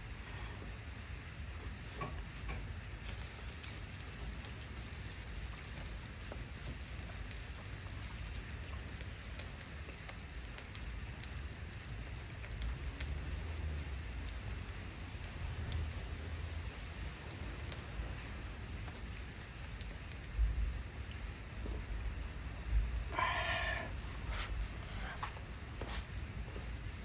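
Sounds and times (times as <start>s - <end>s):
steady rain falling: 0.0s - 27.0s
small ticks: 8.7s - 16.1s, 18.8s - 20.4s.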